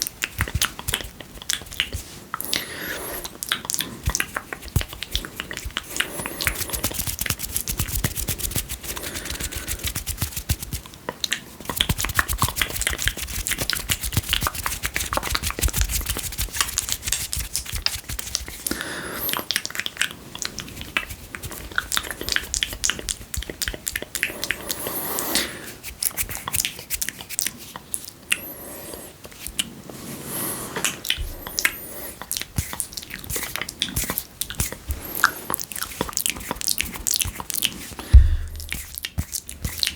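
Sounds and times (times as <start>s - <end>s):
wet mouth clicks and smacks: 0.0s - 2.5s, 3.3s - 16.8s, 19.4s - 24.7s, 26.0s - 28.5s.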